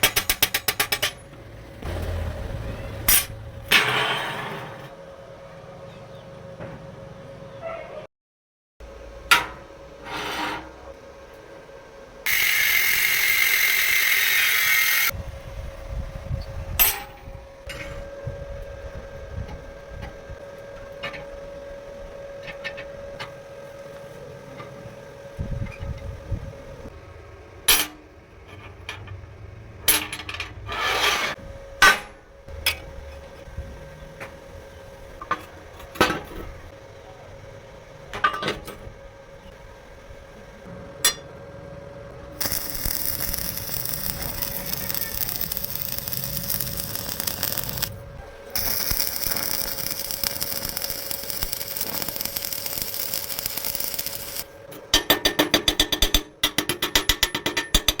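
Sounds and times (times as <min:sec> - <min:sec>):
power tool burst: 0:12.3 - 0:15.1, 0:42.4 - 0:54.5.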